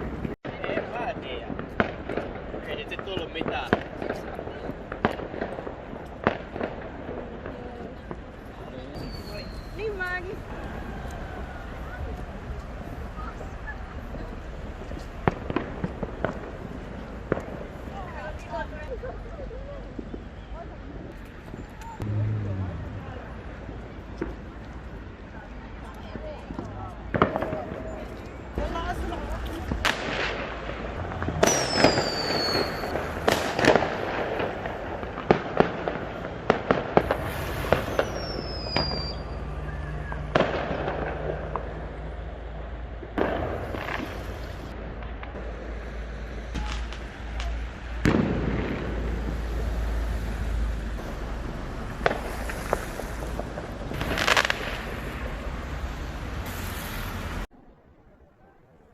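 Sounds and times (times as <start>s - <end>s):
fireworks bangs and pops: 0.0s - 57.5s
fireworks crackling: 0.0s - 57.5s
firework whistle falling in pitch: 31.4s - 33.0s.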